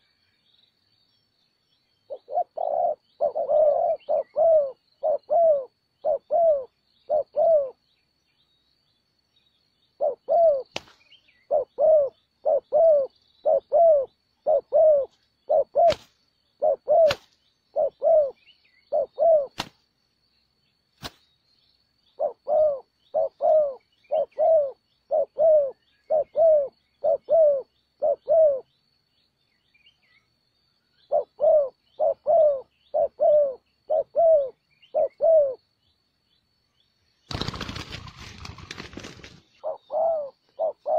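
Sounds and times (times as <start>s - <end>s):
dove cooing: 2.1s - 7.8s, 10.0s - 10.7s, 11.4s - 19.6s, 22.2s - 28.7s, 31.0s - 35.6s, 37.3s - 40.9s.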